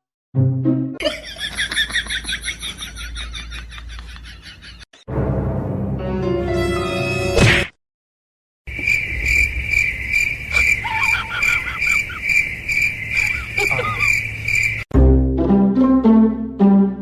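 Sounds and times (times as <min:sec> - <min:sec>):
cricket chirping: 0:08.7 - 0:14.9
brief music: 0:14.9 - 0:17.0.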